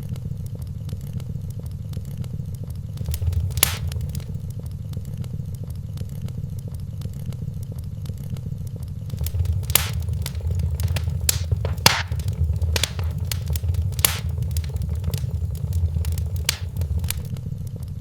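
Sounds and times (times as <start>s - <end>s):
fire pop: 3.0s - 4.4s, 9.1s - 17.3s
wood fire crackling: 3.0s - 4.4s, 9.1s - 17.3s.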